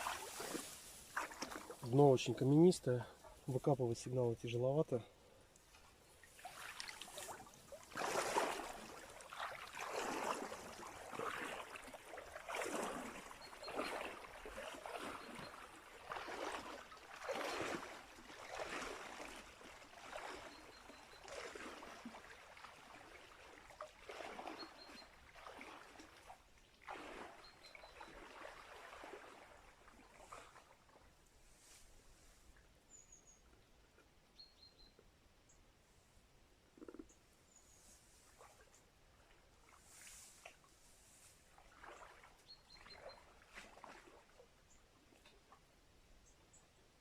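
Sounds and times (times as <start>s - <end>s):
water sloshing and splashing: 0.0s - 3.6s, 5.6s - 31.2s, 38.2s - 45.6s.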